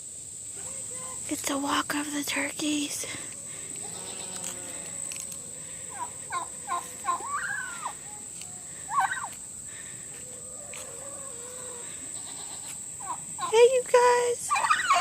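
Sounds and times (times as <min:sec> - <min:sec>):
turkey gobbling: 0:03.3 - 0:09.5, 0:10.1 - 0:13.6, 0:14.5 - 0:15.0.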